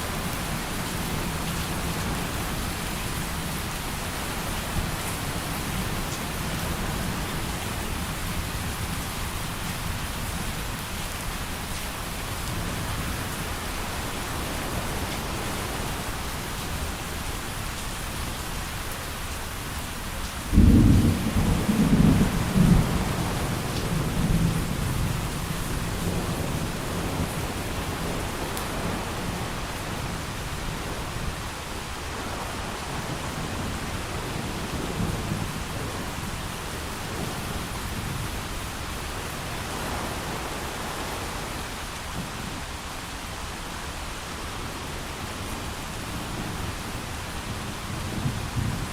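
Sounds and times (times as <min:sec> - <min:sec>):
heavy rain: 0:00.0 - 0:48.9
thunder rumbling: 0:20.5 - 0:30.2.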